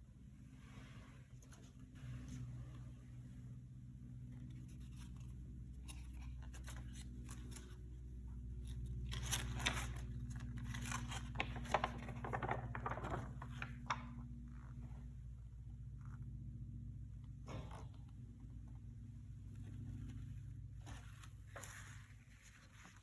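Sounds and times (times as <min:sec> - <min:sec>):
plastic wrap crinkling and tearing: 0:09.0 - 0:14.0.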